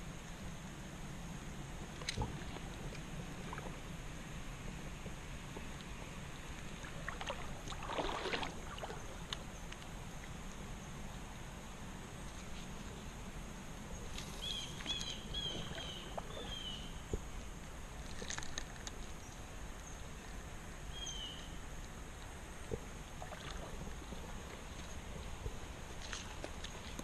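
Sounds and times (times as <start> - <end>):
creek water rushing: 6.2 - 10.0, 14.4 - 18.0
small bird chirping: 14.4 - 17.0.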